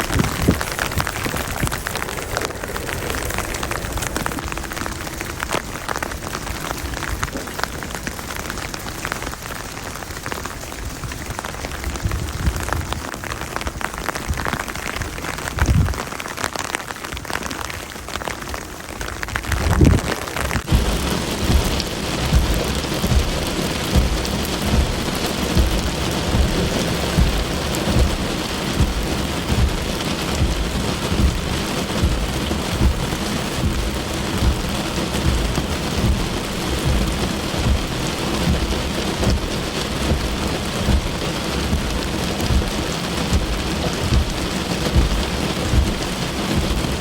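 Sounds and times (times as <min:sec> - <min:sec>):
low thuds: 0:00.0 - 0:05.4, 0:19.7 - 0:47.0
steady rain hiss: 0:00.0 - 0:47.0.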